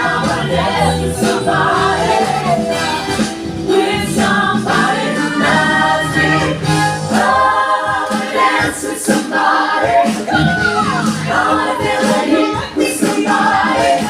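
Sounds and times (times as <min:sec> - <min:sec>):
backing track music: 0:00.0 - 0:14.0
group of voices singing: 0:00.0 - 0:14.0.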